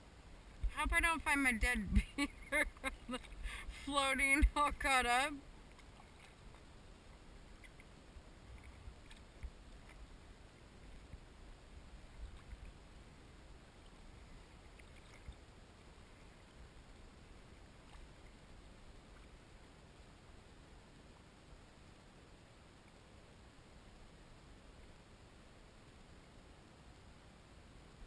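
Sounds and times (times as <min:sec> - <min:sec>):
low steady rumble: 0:00.0 - 0:28.0
small water splashes: 0:05.6 - 0:10.3, 0:12.0 - 0:12.8, 0:13.8 - 0:16.6, 0:17.7 - 0:19.4.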